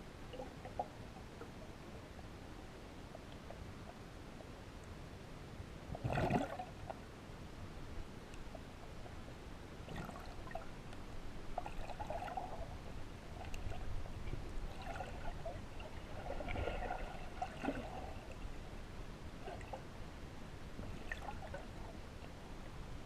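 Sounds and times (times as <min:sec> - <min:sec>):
water splashing and trickling: 0:09.8 - 0:18.7, 0:20.8 - 0:22.4.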